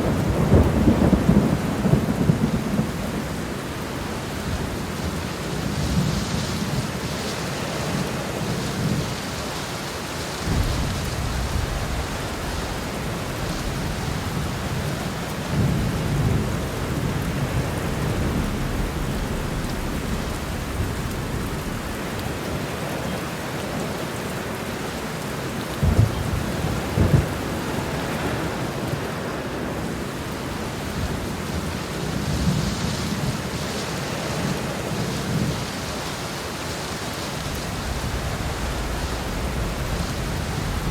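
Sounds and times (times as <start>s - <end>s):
thunder rumbling: 0.0s - 9.0s, 10.4s - 35.8s, 37.2s - 40.9s
heavy rain: 0.0s - 40.9s
sharp thunder cracks: 10.4s - 23.3s, 37.6s - 40.9s.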